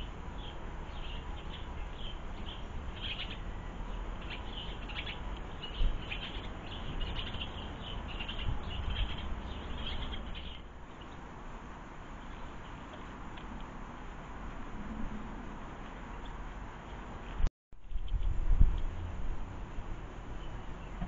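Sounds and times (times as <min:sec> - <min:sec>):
small birds chirping: 0:00.0 - 0:11.3, 0:12.1 - 0:13.8, 0:20.3 - 0:21.0.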